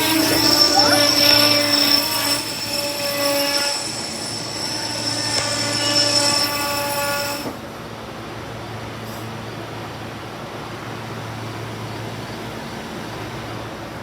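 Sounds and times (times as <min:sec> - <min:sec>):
electric train squealing and whining: 0:00.0 - 0:07.7
train rumble and hiss: 0:00.0 - 0:14.0.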